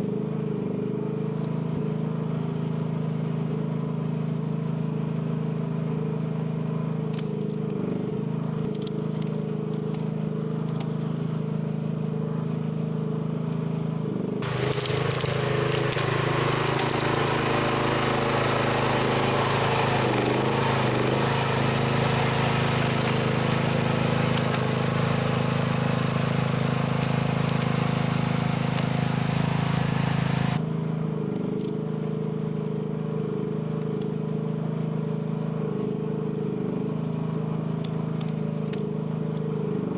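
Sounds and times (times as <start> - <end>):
excavator engine running: 14.4 - 30.6
rough crackling scraping noise: 14.4 - 30.6.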